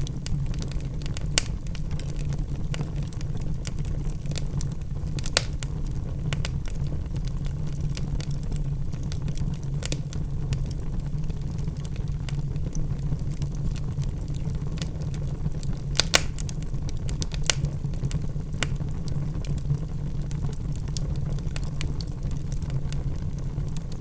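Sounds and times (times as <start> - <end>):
logs crackling in fireplace: 0.0 - 24.0
low rumble of flames: 0.0 - 24.0
sharp pops: 16.0 - 16.4.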